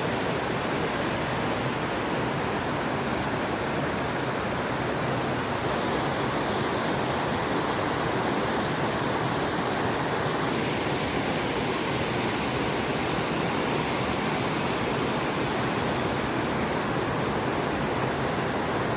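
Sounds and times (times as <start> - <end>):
fast-flowing water rushing: 0.0 - 18.9.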